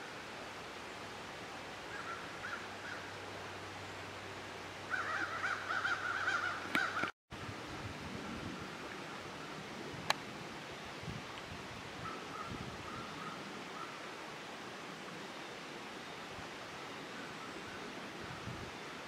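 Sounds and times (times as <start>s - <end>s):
bird calling: 4.9s - 7.1s.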